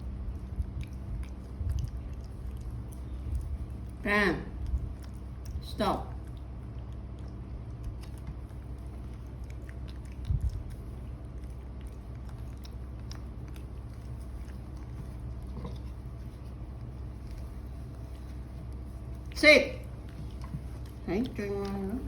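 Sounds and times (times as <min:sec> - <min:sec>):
steady low hum: 0:00.0 - 0:22.0
monkey chewing clicks: 0:04.6 - 0:22.0.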